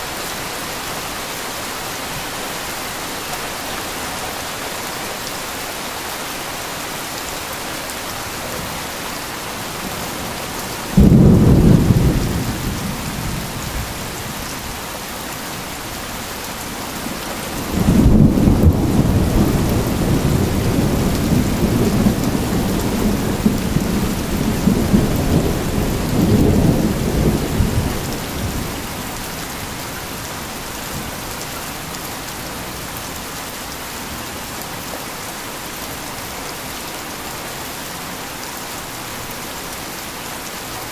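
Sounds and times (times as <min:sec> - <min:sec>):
heavy rain: 0:00.0 - 0:40.9
thunder: 0:10.9 - 0:14.0, 0:17.7 - 0:28.6.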